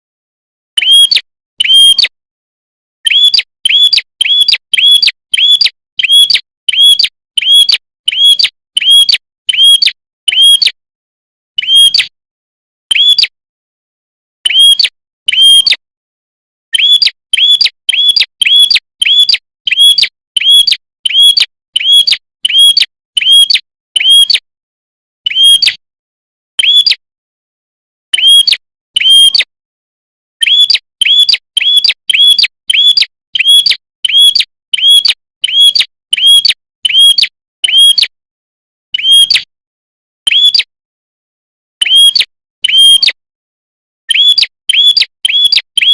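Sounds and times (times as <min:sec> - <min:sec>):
bird chirping call: 0:00.7 - 0:02.2, 0:03.0 - 0:10.8, 0:11.6 - 0:12.2, 0:12.9 - 0:13.4, 0:14.4 - 0:15.8, 0:16.7 - 0:24.5, 0:25.2 - 0:25.8, 0:26.6 - 0:27.0, 0:28.1 - 0:29.5, 0:30.4 - 0:38.2, 0:38.9 - 0:39.5, 0:40.2 - 0:40.7, 0:41.8 - 0:43.2, 0:44.1 - 0:45.9.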